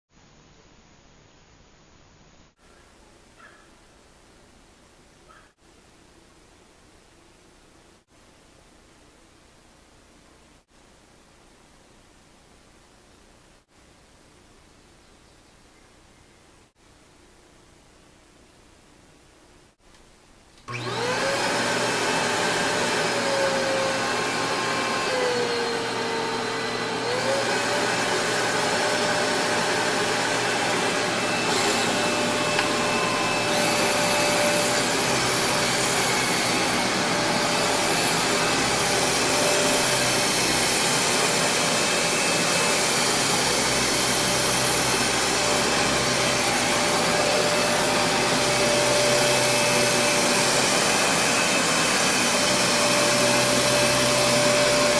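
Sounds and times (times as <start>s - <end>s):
vacuum cleaner motor whine: 20.6s - 54.9s.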